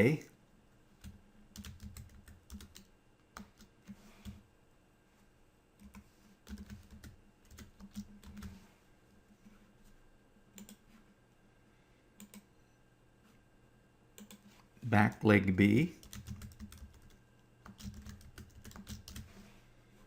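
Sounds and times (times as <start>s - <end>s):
faint typing on a keyboard: 0.8s - 4.5s, 5.7s - 11.1s, 12.2s - 12.5s, 14.1s - 19.5s.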